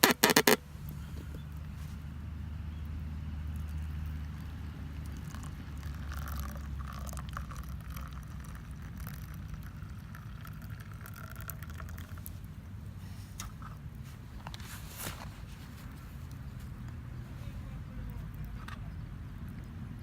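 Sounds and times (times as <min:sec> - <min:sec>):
liquid bubbling in metal cup: 0:03.6 - 0:12.4.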